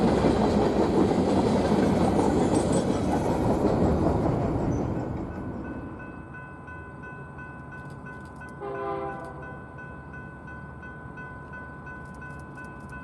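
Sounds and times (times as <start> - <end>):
railroad crossing bell ringing: 4.6 - 13.0
distant locomotive horn blast: 8.6 - 9.5.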